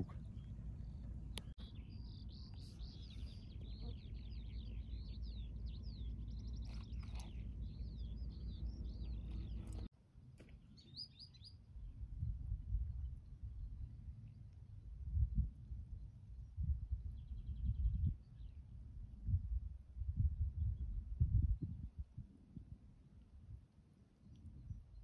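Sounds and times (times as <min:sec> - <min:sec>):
low steady rumble: 0:00.0 - 0:09.9, 0:11.6 - 0:23.7
songbird singing: 0:00.0 - 0:12.3, 0:15.9 - 0:19.4.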